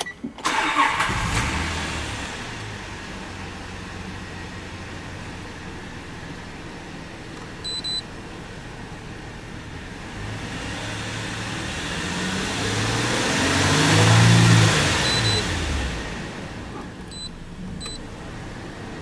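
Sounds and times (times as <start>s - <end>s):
car engine idling and revving: 0.4s - 19.0s
short high electronic beeps: 15.0s - 15.4s.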